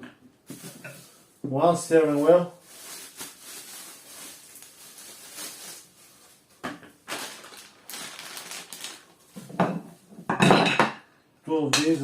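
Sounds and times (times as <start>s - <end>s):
rustling of unpacking: 0.4s - 10.0s.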